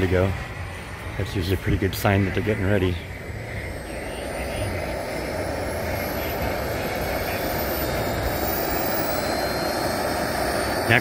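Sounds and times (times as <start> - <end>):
model aircraft engine running: 0.0 - 11.0.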